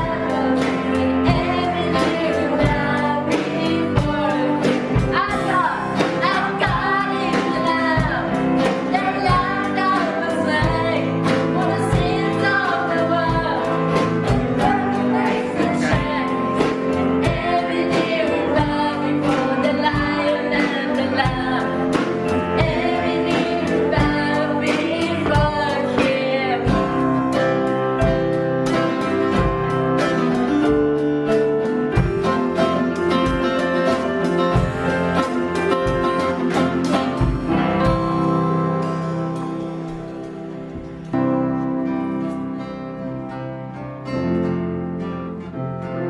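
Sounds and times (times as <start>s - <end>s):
people singing: 0.0s - 30.8s
strummed acoustic guitar: 0.0s - 46.0s.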